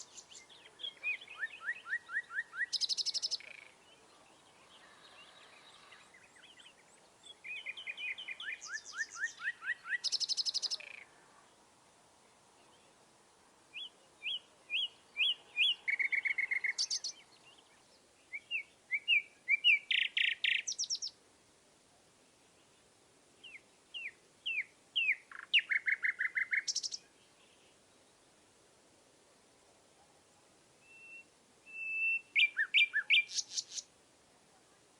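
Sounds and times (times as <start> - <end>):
songbird singing with trills: 0.0 - 11.1, 13.7 - 21.2, 23.4 - 28.2, 30.8 - 33.9.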